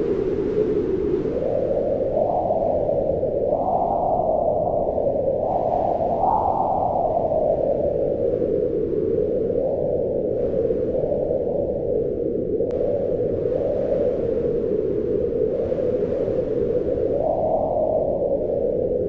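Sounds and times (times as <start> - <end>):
howling wind gusts: 0.0 - 19.0.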